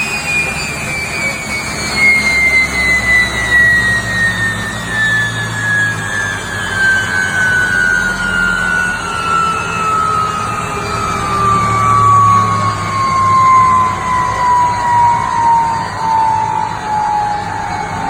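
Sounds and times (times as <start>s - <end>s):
gas turbine whine spooling down: 0.0s - 18.0s
rushing rumbling engine noise: 0.0s - 18.0s.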